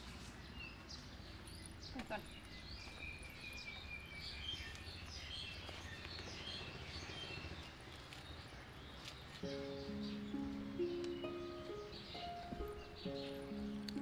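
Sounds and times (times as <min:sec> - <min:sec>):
low background noise: 0:00.0 - 0:14.0
small birds chirping: 0:00.0 - 0:14.0
music track: 0:09.4 - 0:14.0.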